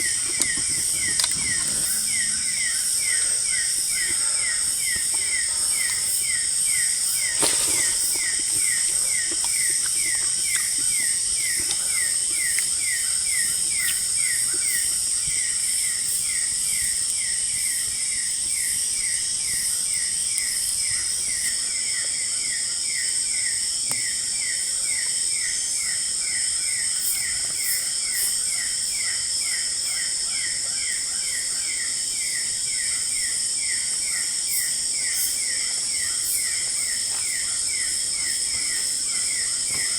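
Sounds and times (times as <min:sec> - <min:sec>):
high-pitched insect drone: 0:00.0 - 0:23.6.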